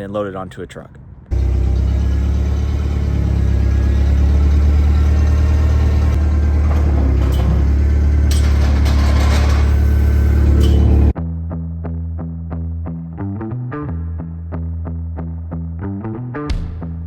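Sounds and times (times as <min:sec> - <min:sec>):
engine rumbling: 0:01.0 - 0:11.2
rattling noise: 0:01.7 - 0:11.1.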